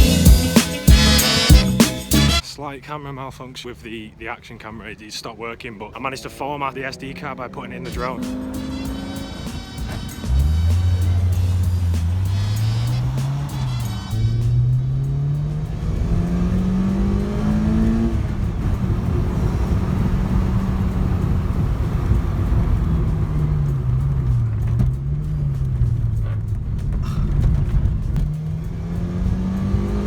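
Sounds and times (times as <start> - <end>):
sports car engine accelerating: 6.0 - 30.0.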